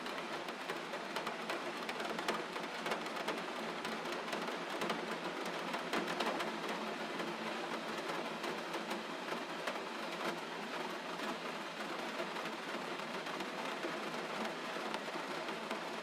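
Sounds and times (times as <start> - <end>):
gentle rain pattering: 0.0 - 16.0.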